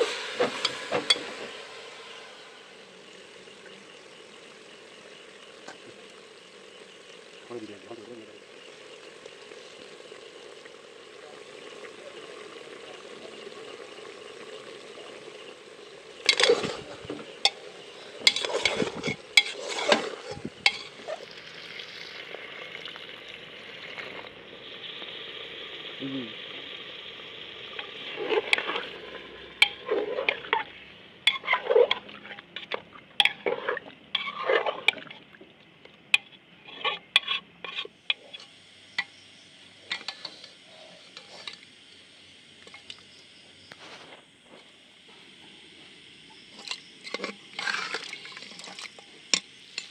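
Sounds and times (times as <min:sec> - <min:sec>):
chicken sizzling in a pot: 0:00.0 - 0:49.9
metal spoon scraping a pot: 0:16.2 - 0:21.2, 0:29.6 - 0:35.2, 0:36.2 - 0:38.5, 0:39.9 - 0:41.6, 0:46.6 - 0:49.9.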